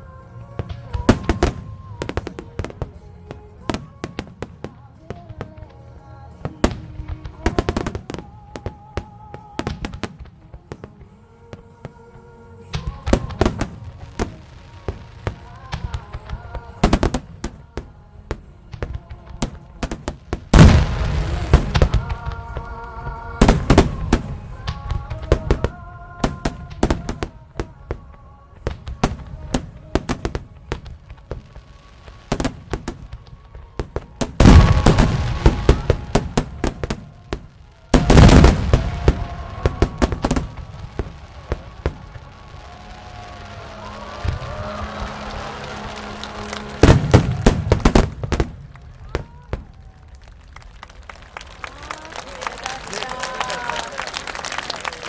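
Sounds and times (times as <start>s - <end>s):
music playing: 0.0s - 49.2s
fireworks cracking and popping: 0.1s - 55.0s
heavy firework booms: 19.8s - 22.4s, 32.2s - 49.7s.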